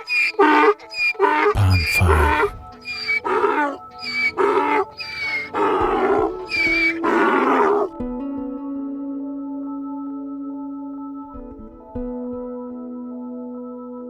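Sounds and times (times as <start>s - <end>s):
background music: 0.0s - 14.0s
big cat growling: 0.4s - 8.0s.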